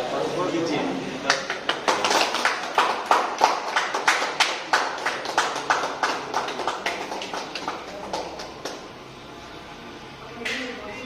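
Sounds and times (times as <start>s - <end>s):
people clapping: 1.2s - 9.0s.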